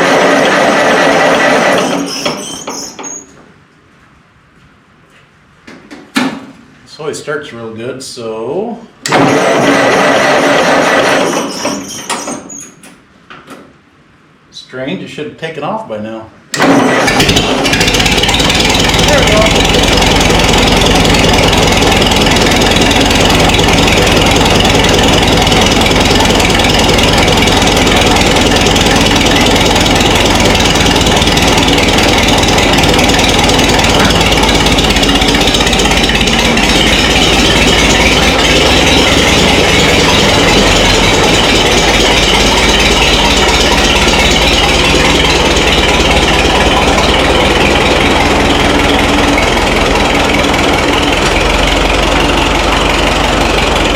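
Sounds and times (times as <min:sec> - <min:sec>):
tractor engine running: 0:00.0 - 0:03.0, 0:09.0 - 0:11.8, 0:16.5 - 0:53.9.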